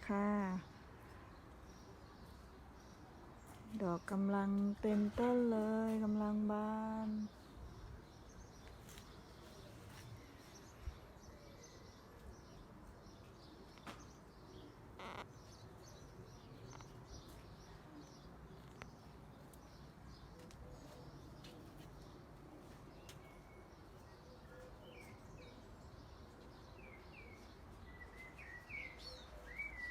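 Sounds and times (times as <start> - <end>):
small birds chirping: 6.0 - 29.9.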